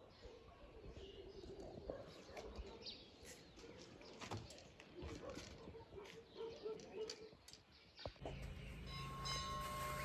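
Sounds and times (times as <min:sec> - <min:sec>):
distant bird chirps: 0:05.9 - 0:10.0.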